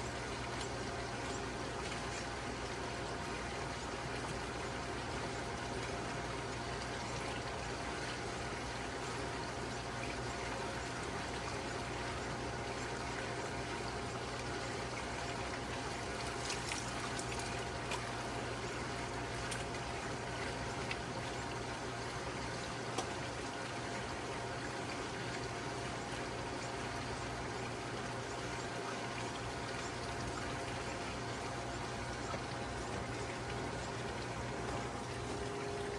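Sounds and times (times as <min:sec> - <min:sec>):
low steady hum: 0:00.0 - 0:35.9
water running: 0:15.0 - 0:19.8.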